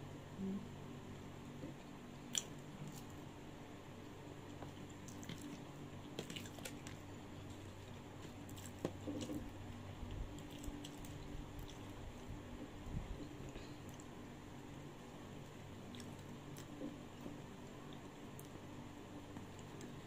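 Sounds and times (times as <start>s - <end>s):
person chewing food: 1.6s - 3.2s, 4.0s - 14.3s, 15.3s - 18.7s.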